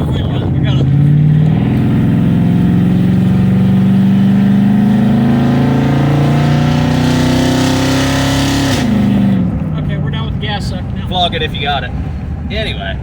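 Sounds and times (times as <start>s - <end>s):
road and wind hiss: 0.0s - 4.9s
vehicle engine accelerating: 0.0s - 13.0s.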